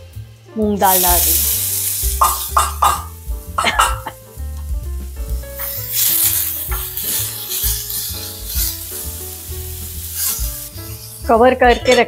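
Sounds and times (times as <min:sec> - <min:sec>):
lentils sizzling in hot oil: 0:00.0 - 0:12.0
steel spoon scraping a pan: 0:05.6 - 0:09.0, 0:09.8 - 0:12.0.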